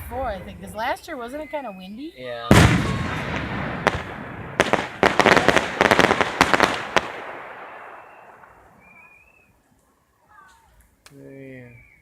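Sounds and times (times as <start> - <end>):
fireworks bangs and crackles: 2.5 - 8.9
echoing rumble: 2.5 - 9.0.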